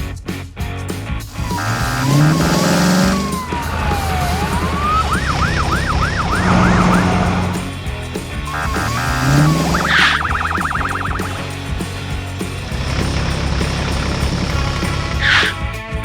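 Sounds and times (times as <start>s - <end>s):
music: 0.0s - 16.0s
cartoon police siren wailing: 1.4s - 7.7s, 8.5s - 11.4s.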